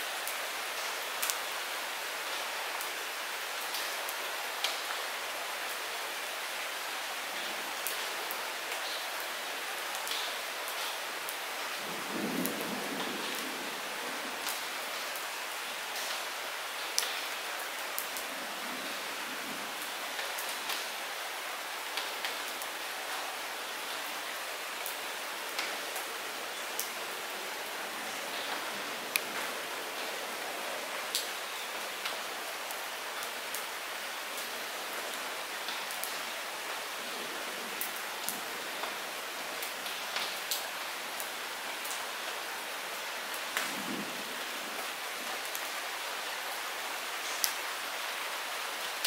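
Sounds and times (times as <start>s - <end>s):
light rain hiss: 0.0s - 49.0s.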